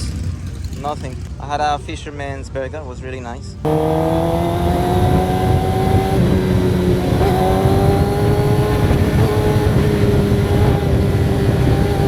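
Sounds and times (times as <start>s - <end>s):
motorcycle engine revving high: 3.6s - 12.0s.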